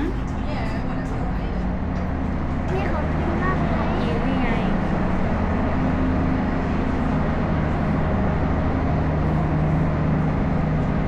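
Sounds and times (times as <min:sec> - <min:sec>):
ship engine drone: 0:00.0 - 0:11.0.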